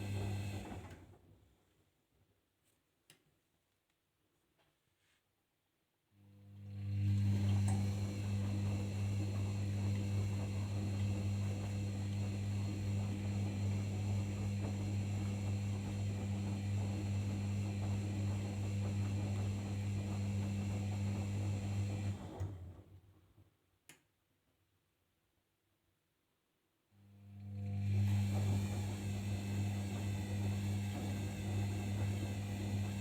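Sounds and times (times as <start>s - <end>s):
washing machine hum and whir: 0.0s - 1.4s, 6.2s - 23.1s, 27.0s - 33.0s.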